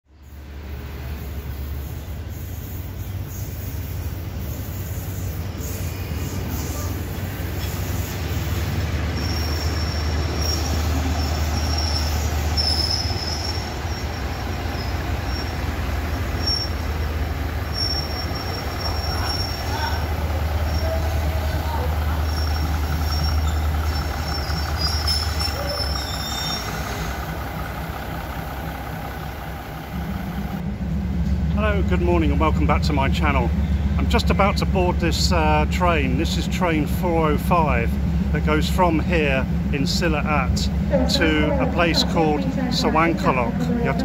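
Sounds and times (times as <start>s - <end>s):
diesel train low drone: 0.1s - 44.0s
high-pitched squeal: 1.1s - 30.6s.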